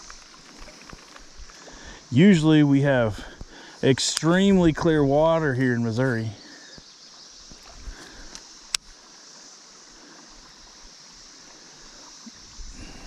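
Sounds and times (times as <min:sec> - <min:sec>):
creek water flowing: 0:00.0 - 0:13.0
light clicks: 0:04.1 - 0:04.4.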